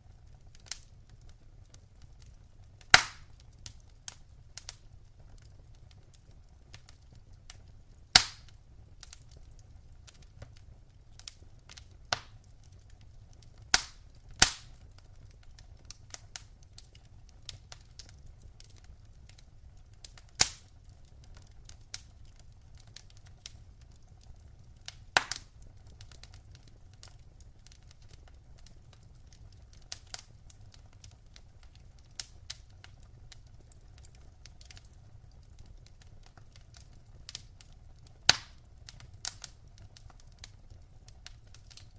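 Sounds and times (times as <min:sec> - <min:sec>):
faint low fire rumble: 0:00.0 - 0:41.9
wood fire crackling and popping: 0:00.0 - 0:41.9.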